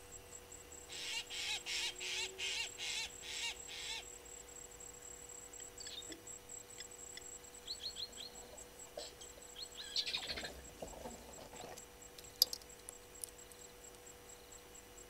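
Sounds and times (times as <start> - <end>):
faint bird chirps: 5.5 - 12.5.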